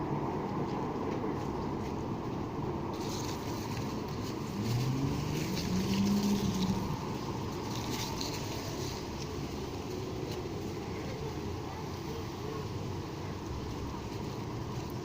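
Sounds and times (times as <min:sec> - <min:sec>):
leaves rustling in wind: 0:00.0 - 0:15.0
road traffic rumble: 0:00.0 - 0:15.0
vehicle engine speeding up: 0:03.7 - 0:08.5.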